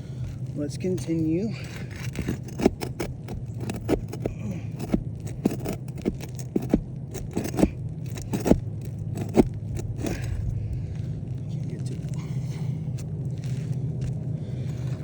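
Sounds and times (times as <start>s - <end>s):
steady low rumble: 0.0s - 15.0s
hand tool clicking on nails: 1.6s - 10.5s.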